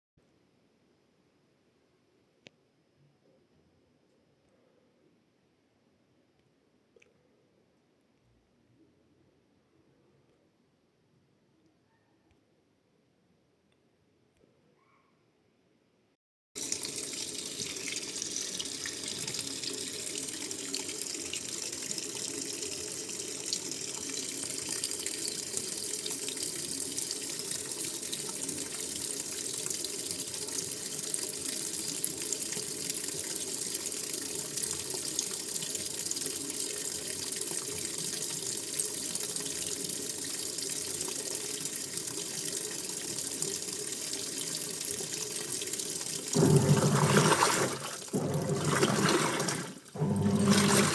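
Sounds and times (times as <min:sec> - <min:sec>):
washing machine filling with water: 0:16.6 - 0:50.9.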